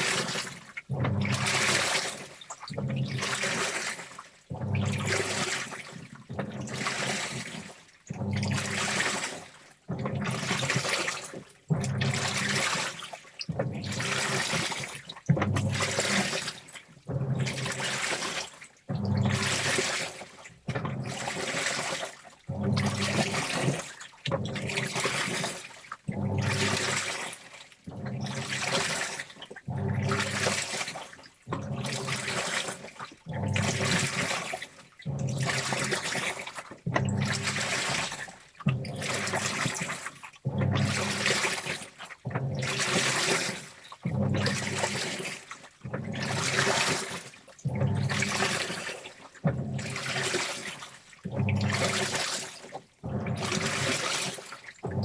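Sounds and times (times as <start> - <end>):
washing machine water sloshing: 0.0 - 55.0
low motor hum: 27.9 - 28.4, 53.0 - 54.0.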